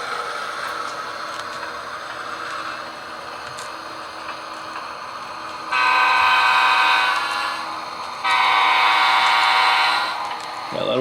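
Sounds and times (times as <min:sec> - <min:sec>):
locomotive horn blasts: 0:05.7 - 0:07.6, 0:08.2 - 0:10.2.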